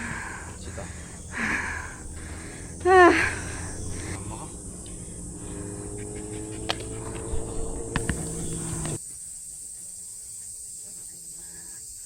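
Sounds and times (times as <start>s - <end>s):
low rumble: 0.0s - 9.0s
insects buzzing: 0.0s - 12.0s
sharp clicks: 6.3s - 9.0s.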